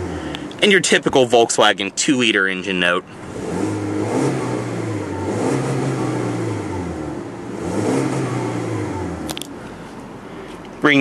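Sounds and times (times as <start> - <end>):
car engine revving: 0.0 - 1.0, 3.0 - 10.0.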